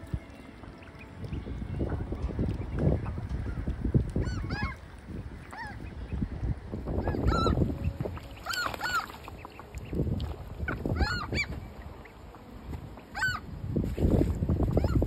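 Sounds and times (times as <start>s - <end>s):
wind buffeting microphone: 0.0s - 15.0s
seagulls calling: 2.6s - 13.6s, 14.7s - 15.0s.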